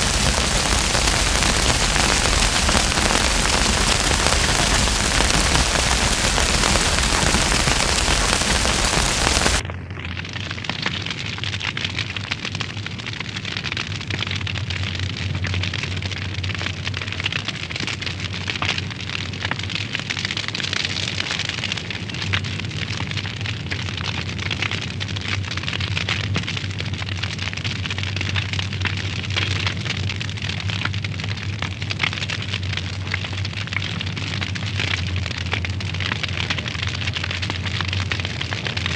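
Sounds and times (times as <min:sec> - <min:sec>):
loud even hiss: 0:00.0 - 0:09.6
wood fire crackling: 0:00.0 - 0:10.1, 0:22.0 - 0:38.9.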